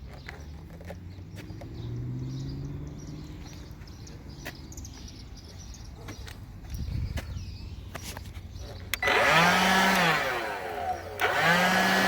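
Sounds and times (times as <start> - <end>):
distant motor hum: 8.9 - 12.0
sharp clicks: 11.2 - 11.4.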